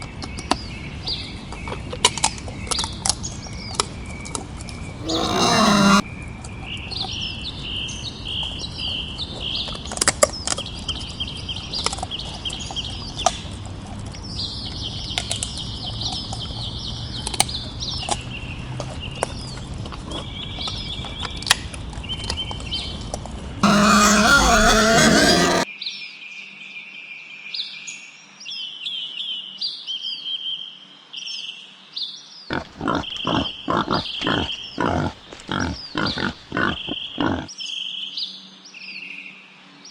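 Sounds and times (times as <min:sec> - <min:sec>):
birds chirping: 0:05.0 - 0:06.0, 0:23.6 - 0:25.6, 0:32.5 - 0:37.5
boar grunting: 0:05.0 - 0:06.0, 0:23.6 - 0:25.6, 0:32.5 - 0:37.5
wild boar squealing: 0:05.0 - 0:06.0, 0:23.6 - 0:25.6, 0:32.5 - 0:37.5.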